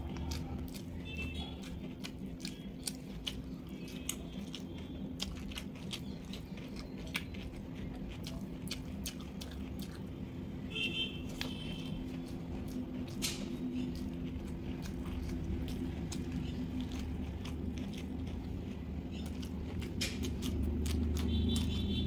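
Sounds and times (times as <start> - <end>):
steady low hum: 0.0 - 22.0
wet chewing: 0.0 - 22.0
lip-smacking clicks: 11.3 - 21.9.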